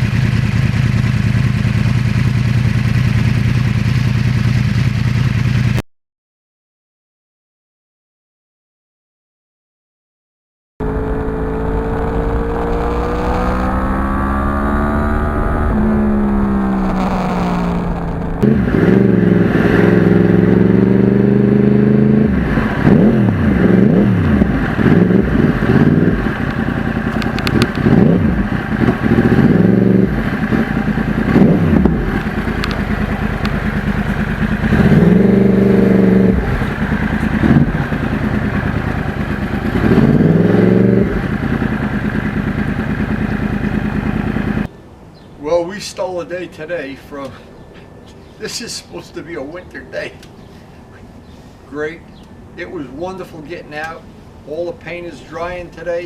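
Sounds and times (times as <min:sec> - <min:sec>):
motorcycle engine revving: 0:00.0 - 0:05.8, 0:10.8 - 0:44.7.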